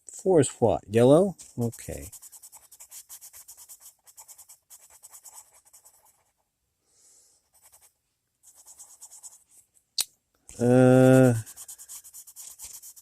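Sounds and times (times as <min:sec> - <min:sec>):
colored pencil scratching on paper: 0:01.2 - 0:06.4, 0:07.4 - 0:09.6, 0:10.5 - 0:13.0.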